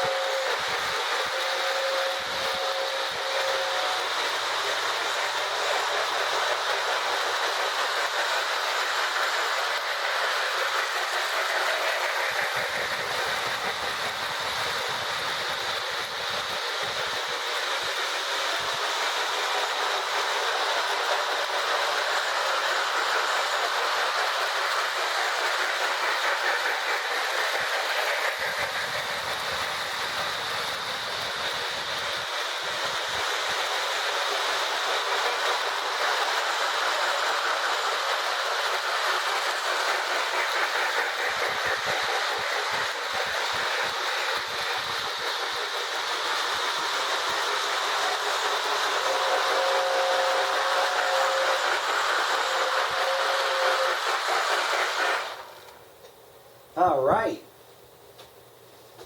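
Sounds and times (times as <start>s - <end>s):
toy train whirring: 0.0s - 56.1s
wheels clicking over rail joints: 3.9s - 17.9s, 34.8s - 55.8s.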